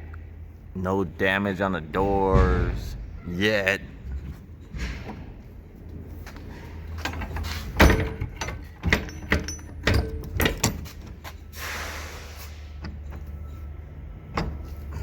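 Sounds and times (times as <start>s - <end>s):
steady low hum: 0.0s - 8.8s
trailer doors clanking shut: 2.0s - 13.3s, 14.2s - 15.0s
short hiss: 11.6s - 12.7s.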